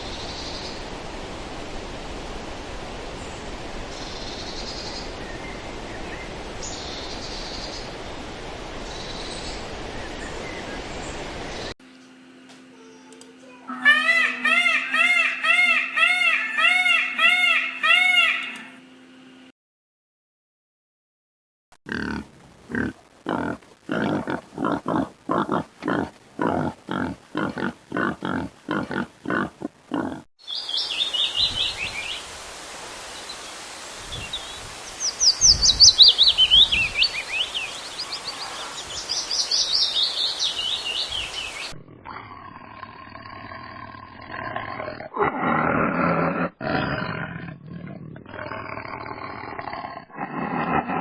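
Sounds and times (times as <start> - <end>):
high chirping calls and trills: 34.1 - 41.8.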